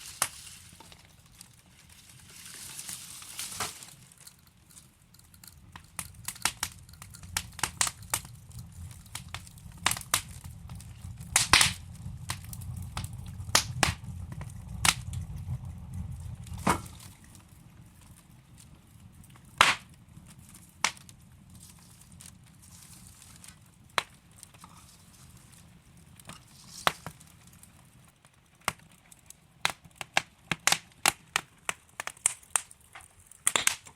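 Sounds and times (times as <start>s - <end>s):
logs crackling in a fireplace: 0.0s - 33.9s
low rumble: 5.5s - 18.9s.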